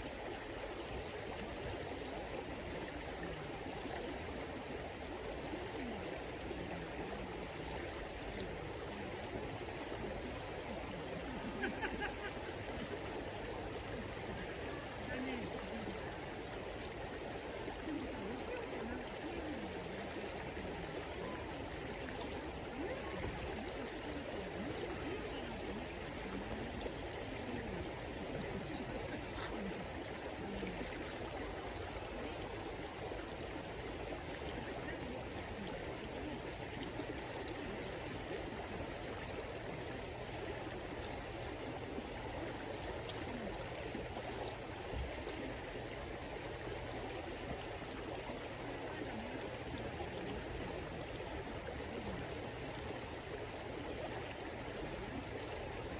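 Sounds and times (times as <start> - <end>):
river water flowing: 0.0 - 55.9.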